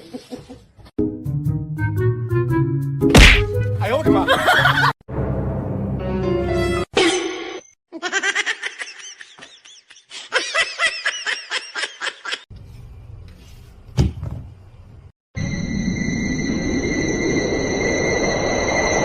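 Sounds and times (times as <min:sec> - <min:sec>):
sharp knock: 0:03.1 - 0:03.5.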